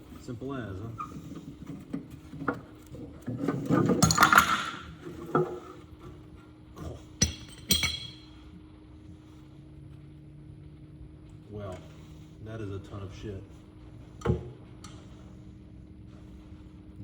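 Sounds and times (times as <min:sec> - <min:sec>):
metal parts clinking: 0:07.2 - 0:08.3.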